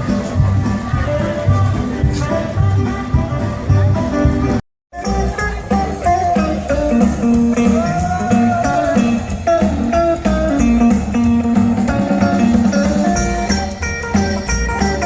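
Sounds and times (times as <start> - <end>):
bass line and beat: 0.0 - 15.0
electric guitar lines: 4.4 - 15.0.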